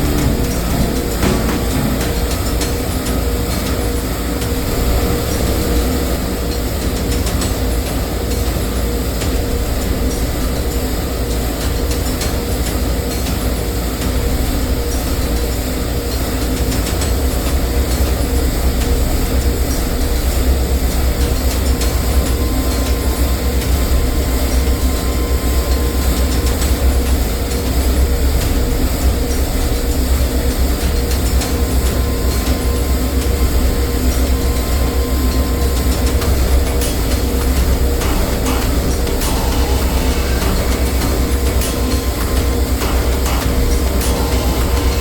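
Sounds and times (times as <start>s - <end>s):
loud machine rumble: 0.0s - 6.9s, 17.6s - 45.0s.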